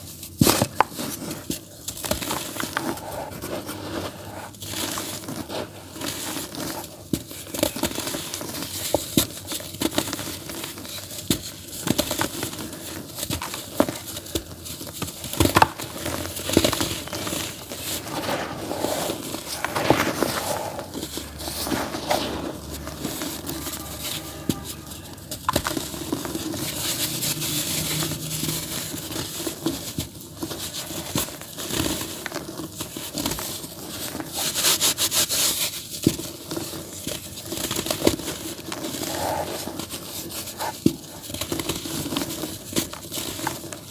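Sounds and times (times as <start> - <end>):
dry dirt crumbling and crunching: 13.4 - 30.5.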